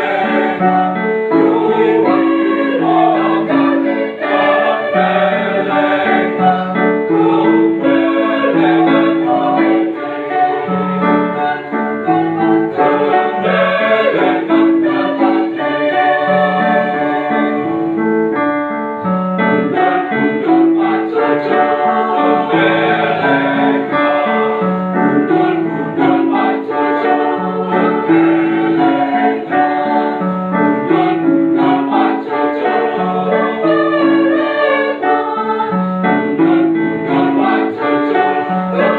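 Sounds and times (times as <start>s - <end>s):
mixed choir singing: 0.0s - 18.0s, 19.5s - 38.9s
keyboard accompaniment: 0.0s - 38.9s.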